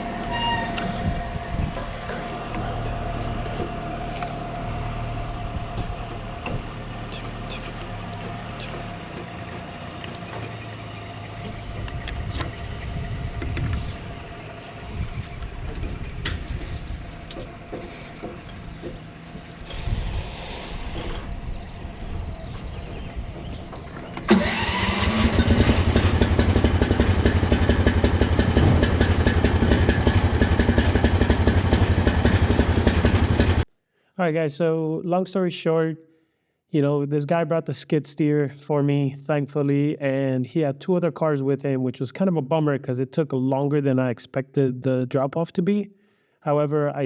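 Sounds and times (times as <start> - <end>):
low vehicle rumble: 0.0 - 33.7
small engine running loud: 0.0 - 33.7
scattered knocks: 28.2 - 31.1.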